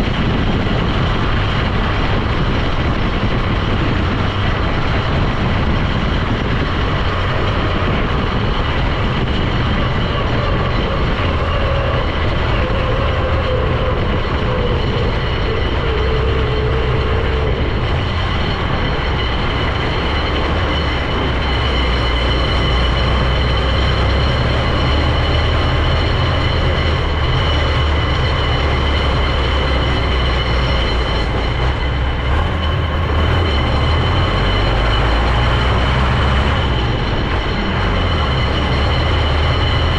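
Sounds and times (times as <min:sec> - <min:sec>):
faint high whine: 0:00.0 - 0:39.9
vehicle engine and road noise: 0:00.0 - 0:39.9.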